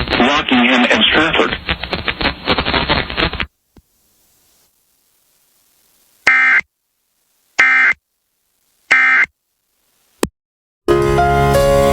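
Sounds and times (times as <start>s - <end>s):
harsh buzzing data bursts: 4.1s - 10.2s.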